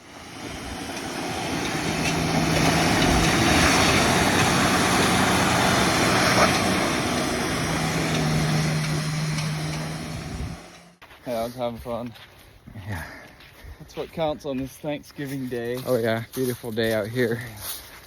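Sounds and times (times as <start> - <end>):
truck engine humming: 0.0 - 11.1
tyre and wind noise: 0.0 - 12.9.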